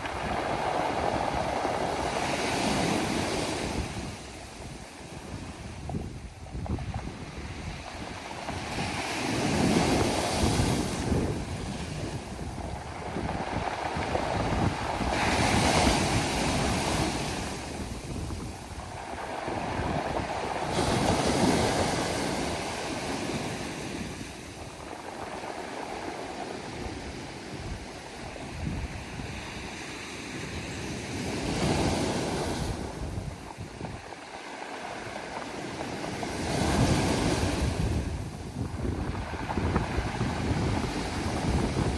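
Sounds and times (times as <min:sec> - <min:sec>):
waves breaking on pebble beach: 0:00.0 - 0:41.9.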